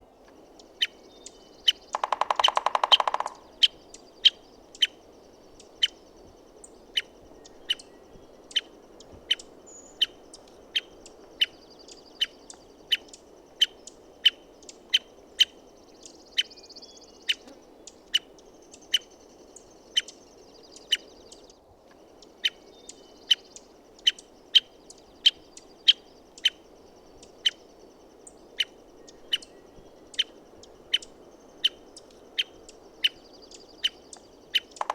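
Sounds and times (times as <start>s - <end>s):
woodpecker drum roll: 2.0s - 3.5s.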